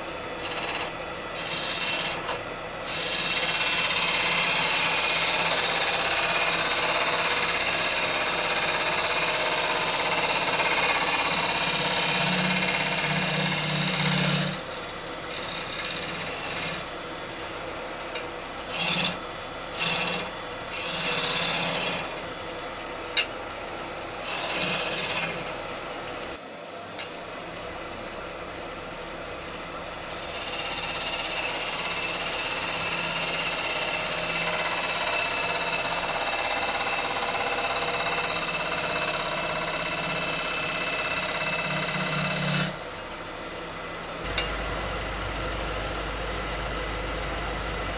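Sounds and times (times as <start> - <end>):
lathe humming: 0.1 - 22.2, 30.0 - 42.8, 44.1 - 47.9
gouge cutting wood on lathe: 0.4 - 17.0, 18.7 - 22.2, 24.2 - 25.6, 30.0 - 42.8, 44.2 - 47.9.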